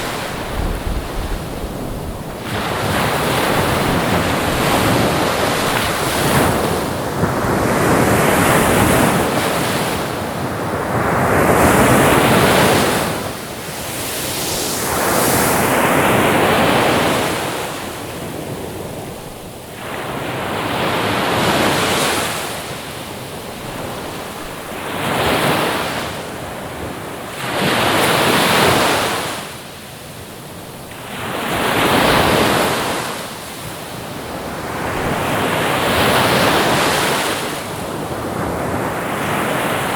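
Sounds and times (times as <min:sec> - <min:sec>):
ocean waves breaking: 0:00.0 - 0:26.6.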